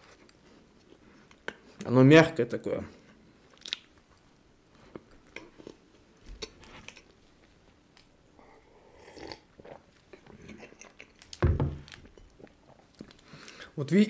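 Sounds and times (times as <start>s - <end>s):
chewing a soft cookie: 2.9s - 13.7s
loud thump: 11.4s - 11.9s.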